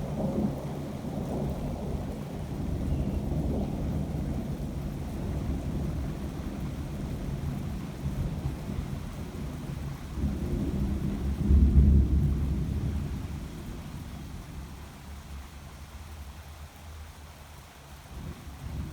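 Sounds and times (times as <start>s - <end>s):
thunder rumbling: 0.0s - 14.8s.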